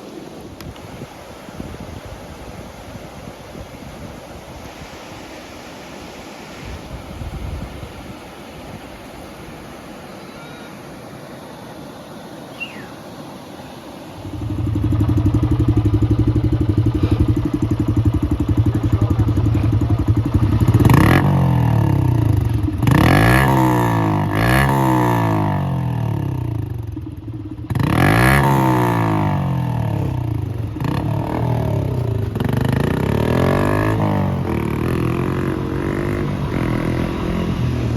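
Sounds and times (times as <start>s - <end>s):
rushing water: 0.0s - 37.9s
motor engine revving: 14.2s - 37.9s.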